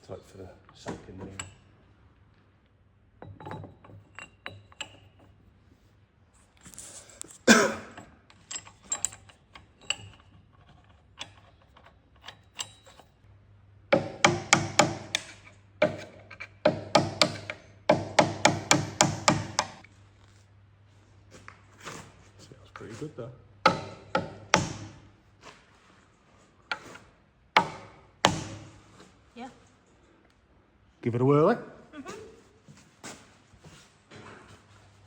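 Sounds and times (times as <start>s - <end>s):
hammer striking steel: 23.7s - 25.0s, 27.6s - 28.8s.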